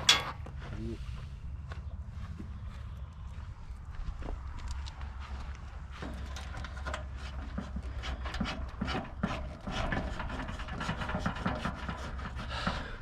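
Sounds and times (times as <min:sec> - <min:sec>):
knocks and clicks of metal tools: 0:00.0 - 0:00.4
steady low hum: 0:00.0 - 0:13.0.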